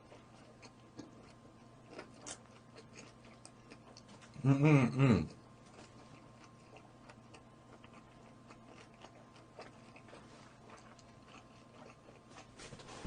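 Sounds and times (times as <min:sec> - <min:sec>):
chewing and biting chicken: 0:00.0 - 0:04.4, 0:05.2 - 0:12.8
mouth sounds: 0:04.4 - 0:05.4.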